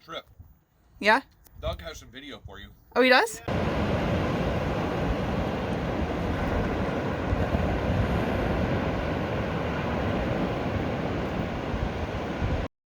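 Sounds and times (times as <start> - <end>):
water rushing past boat: 3.5 - 12.7
wind on microphone: 3.5 - 12.7.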